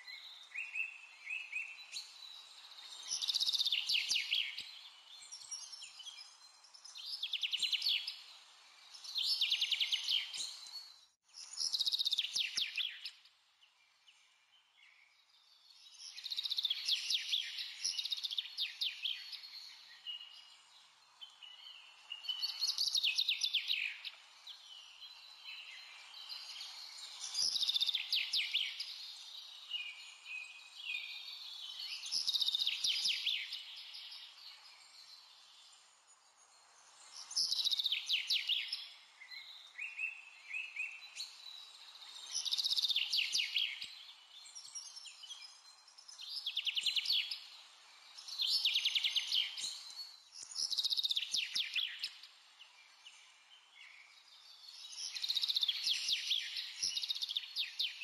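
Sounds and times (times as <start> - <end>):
small bird chirping in trills: 0.0 - 13.2, 13.8 - 58.0.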